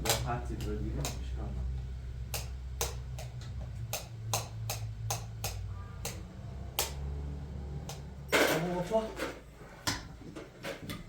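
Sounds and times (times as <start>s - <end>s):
low hum: 1.6s - 8.4s.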